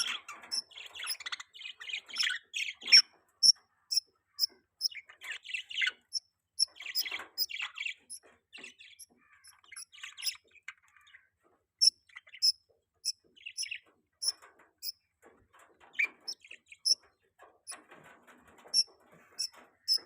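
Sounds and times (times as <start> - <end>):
budgerigars chirping: 0.0 - 3.1, 3.9 - 11.2, 11.8 - 14.4, 18.8 - 20.0.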